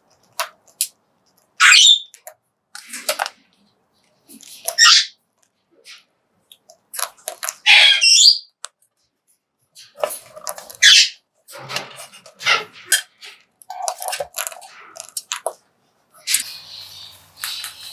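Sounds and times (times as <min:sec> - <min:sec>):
cockatoo squawks and chirps: 0:01.6 - 0:02.2, 0:04.6 - 0:05.2, 0:07.6 - 0:08.6, 0:10.7 - 0:11.2.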